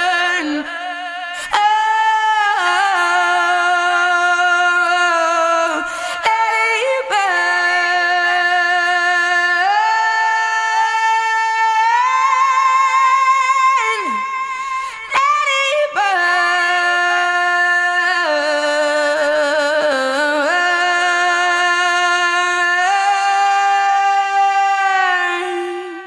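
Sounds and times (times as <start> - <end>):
woman singing wordless notes: 0.0 - 26.0.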